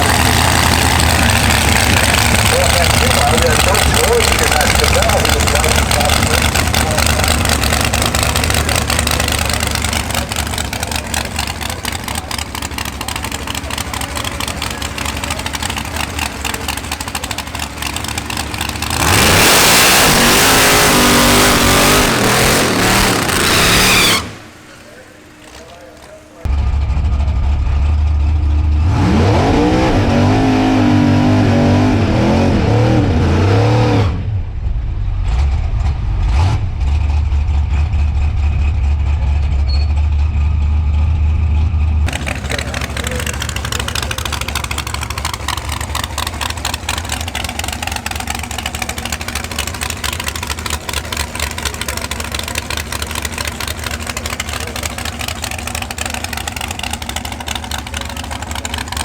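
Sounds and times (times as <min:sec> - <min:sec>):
rough buzzing engine note: 0:00.0 - 0:34.5
race car engine revving: 0:00.0 - 0:39.6, 0:40.2 - 0:59.0.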